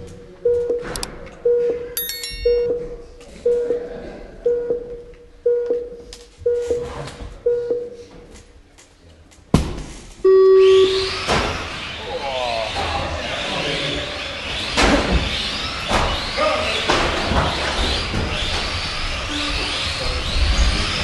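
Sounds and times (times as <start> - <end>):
short countdown beeps: 0.4 - 8.0, 10.3 - 11.0.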